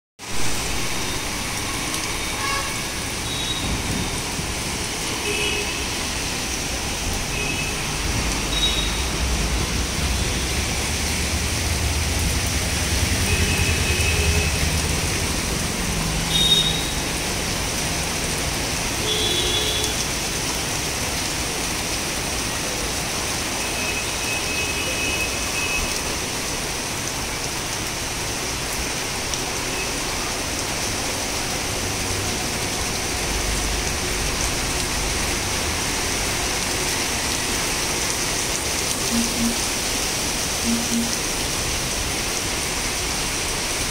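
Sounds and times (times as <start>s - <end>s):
heavy rain on wet street: 0.2s - 43.9s
road traffic: 0.2s - 43.9s
passing vehicle rumble: 9.1s - 16.3s
short horn beeps: 39.1s - 39.7s, 40.6s - 41.2s.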